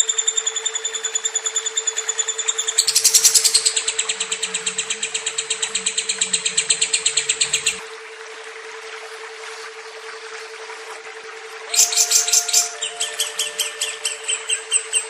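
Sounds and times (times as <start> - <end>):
steady low hum: 0.0 - 15.0
bird chirping rapidly: 0.7 - 7.8, 11.7 - 15.0.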